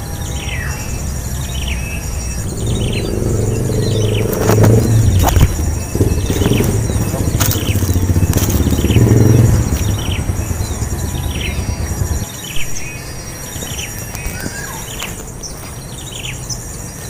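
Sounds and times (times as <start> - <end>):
high-pitched insect whine: 0.0 - 17.0
small birds chirping: 0.0 - 17.0
loud low rumble: 1.6 - 12.3.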